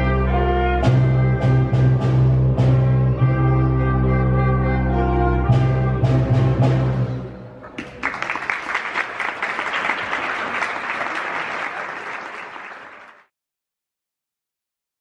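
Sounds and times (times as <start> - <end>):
audience applauding: 7.7 - 13.3.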